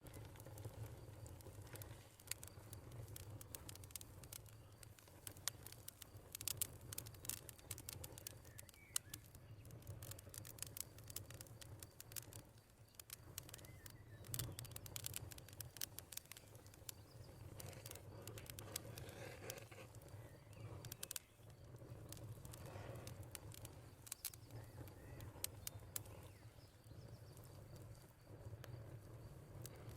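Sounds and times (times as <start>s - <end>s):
wood fire crackling: 0.0s - 29.9s
faint bird chirps: 6.9s - 29.9s.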